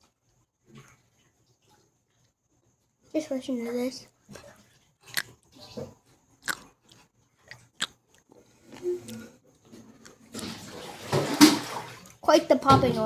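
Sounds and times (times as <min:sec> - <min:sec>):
seaweed popping while chewed: 0:06.4 - 0:08.2.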